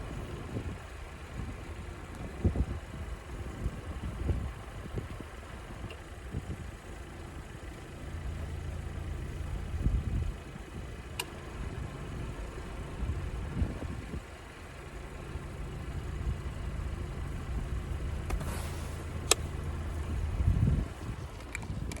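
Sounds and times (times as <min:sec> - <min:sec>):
car engine idling: 0:00.0 - 0:22.0
sharp clicks: 0:18.2 - 0:18.6, 0:19.2 - 0:19.5.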